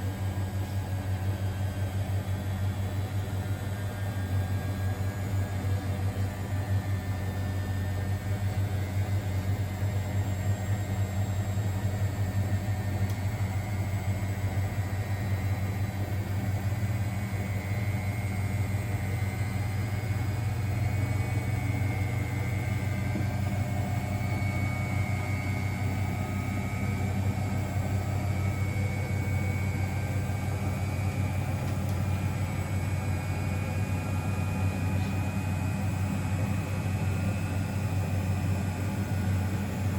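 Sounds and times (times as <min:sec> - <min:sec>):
washing machine humming: 0:00.0 - 0:39.9.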